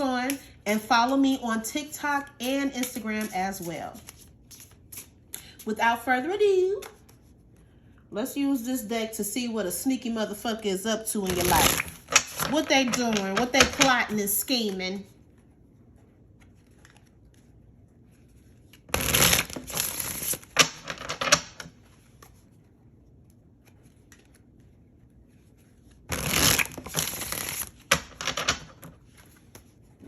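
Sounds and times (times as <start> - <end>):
cards shuffled by hand: 2.4 - 5.4, 11.2 - 15.3, 16.2 - 30.0.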